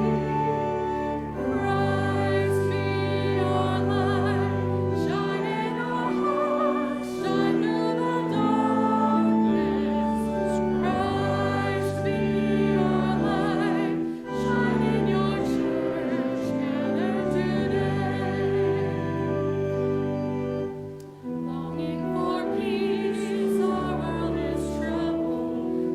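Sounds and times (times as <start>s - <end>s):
held church chords: 0.0s - 25.9s
person singing with vibrato: 1.3s - 20.0s.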